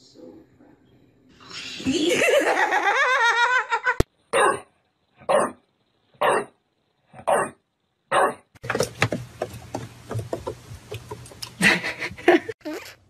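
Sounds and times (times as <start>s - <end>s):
person laughing: 1.8s - 4.0s, 11.6s - 12.8s
dog barking: 4.3s - 5.6s, 6.2s - 6.5s, 8.1s - 8.4s.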